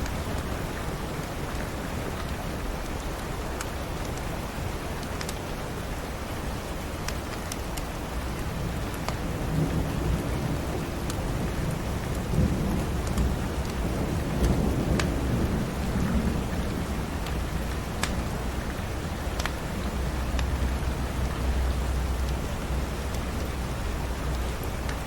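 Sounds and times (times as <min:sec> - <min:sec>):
steady rain: 0:00.0 - 0:25.0
wood fire crackling: 0:06.7 - 0:25.0
low rumble of thunder: 0:08.5 - 0:24.9.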